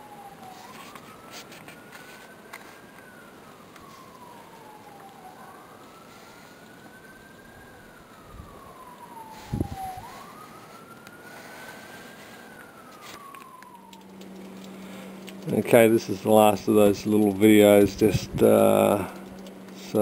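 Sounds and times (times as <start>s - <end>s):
emergency siren wailing: 0.0s - 20.0s.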